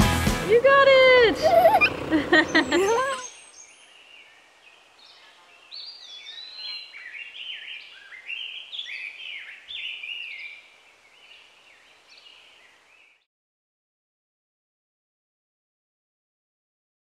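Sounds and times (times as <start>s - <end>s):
songbirds chirping: 0.4s - 13.3s.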